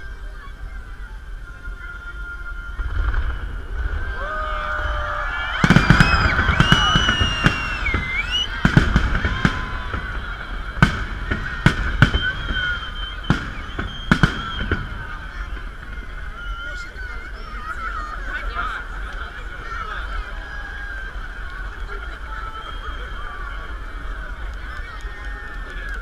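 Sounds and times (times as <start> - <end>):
low rumble: 2.7 - 16.7
firework bangs: 2.7 - 25.7.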